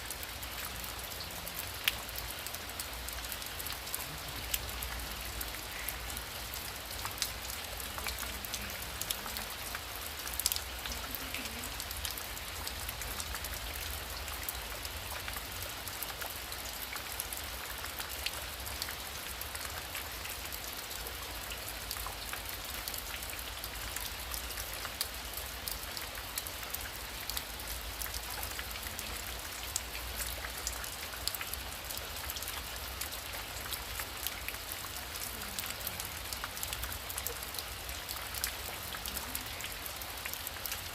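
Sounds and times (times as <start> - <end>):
heavy rain hissing: 10.8 - 12.0.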